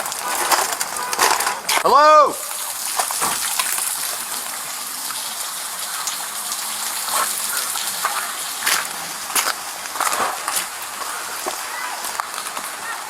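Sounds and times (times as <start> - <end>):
heavy rain hissing: 0.0 - 13.0
running water: 0.0 - 13.0.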